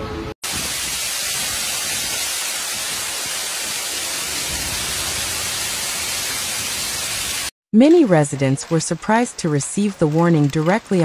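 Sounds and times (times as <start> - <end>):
heavy rain pelting down: 0.4 - 7.5.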